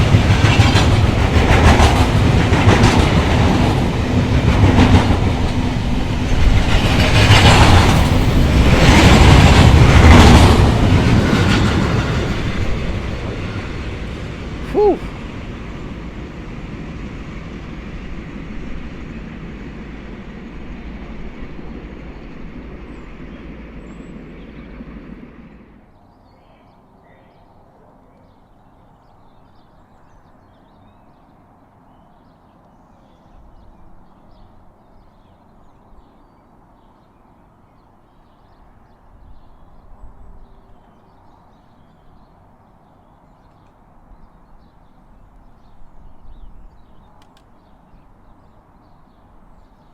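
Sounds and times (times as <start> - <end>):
train rumbling past: 0.0 - 26.0
faint bird chirps: 25.9 - 49.9.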